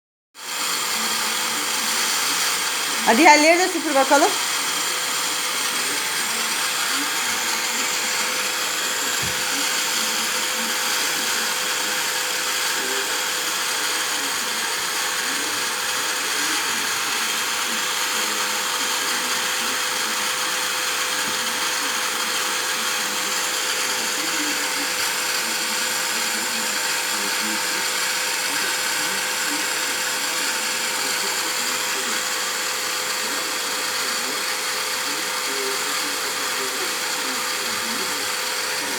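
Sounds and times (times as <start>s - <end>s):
vacuum cleaner running: 0.4s - 38.9s.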